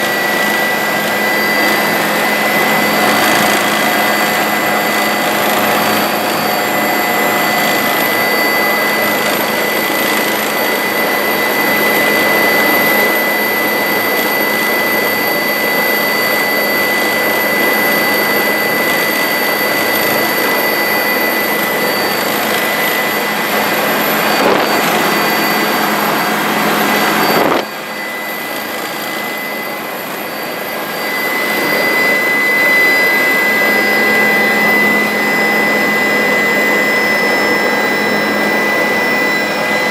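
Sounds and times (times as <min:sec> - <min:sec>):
helicopter turbine and rotor noise: 0:00.0 - 0:39.9.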